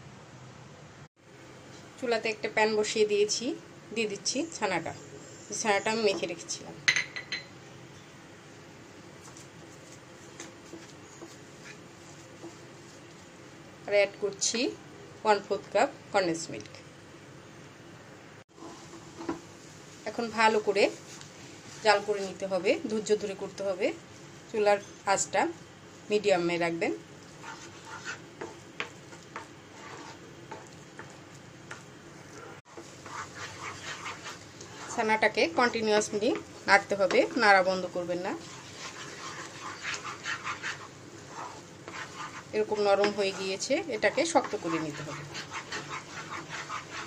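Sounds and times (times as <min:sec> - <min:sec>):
spatula scraping a pan: 0:09.2 - 0:13.0, 0:18.5 - 0:19.4, 0:27.2 - 0:47.0.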